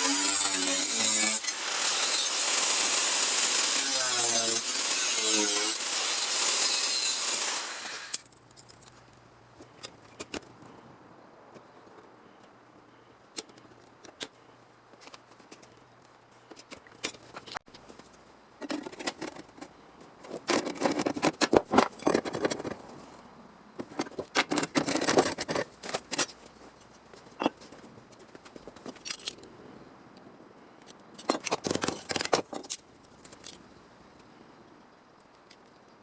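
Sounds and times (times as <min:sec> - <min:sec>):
power tool running: 0:00.0 - 0:08.2
metal parts scraping and rattling: 0:18.6 - 0:22.8, 0:23.8 - 0:29.4.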